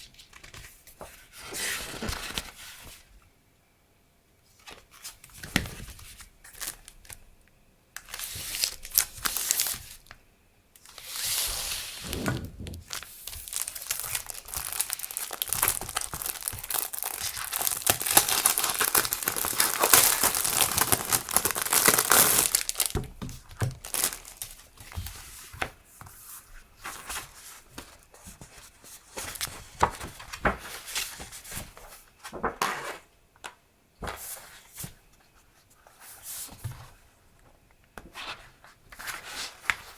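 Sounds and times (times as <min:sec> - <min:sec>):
packaging crinkling and rustling: 0:12.1 - 0:25.1.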